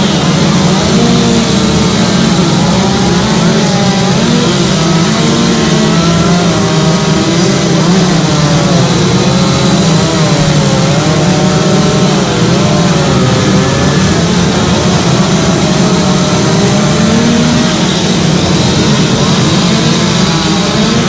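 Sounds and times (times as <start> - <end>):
chainsaws cutting wood: 0.0 - 21.0.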